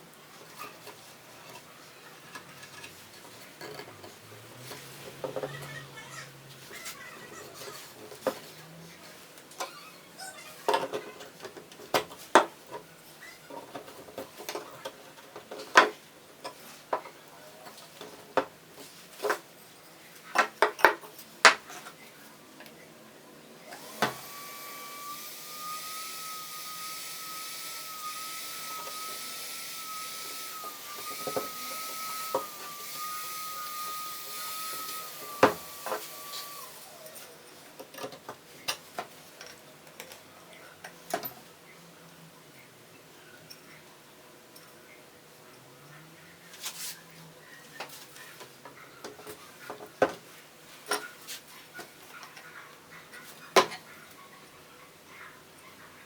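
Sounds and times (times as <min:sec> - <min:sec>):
small electric motor whining: 0:23.6 - 0:37.3.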